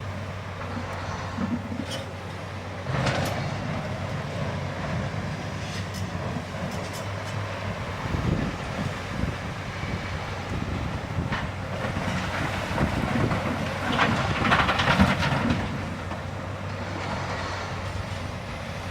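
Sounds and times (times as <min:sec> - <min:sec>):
diesel machinery rumbling: 0:00.0 - 0:18.9
light clanks: 0:05.6 - 0:07.5.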